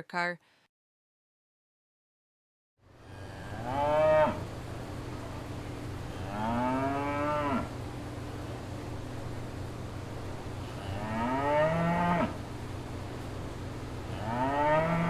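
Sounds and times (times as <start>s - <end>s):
steady low hum: 2.8s - 15.0s
cow mooing: 3.2s - 4.4s, 6.2s - 7.7s, 10.8s - 12.4s, 14.1s - 15.0s.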